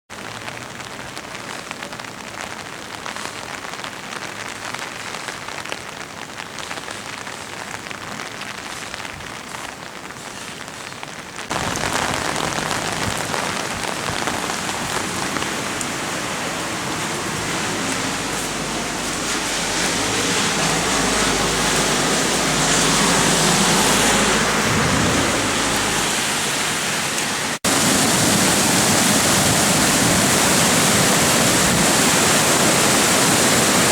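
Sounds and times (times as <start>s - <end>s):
rain: 0.1s - 33.9s
creek water rushing: 11.5s - 33.9s.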